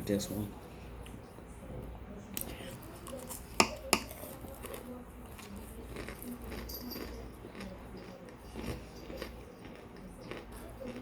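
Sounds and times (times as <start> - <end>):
chewing crunchy frozen food: 2.4 - 11.0.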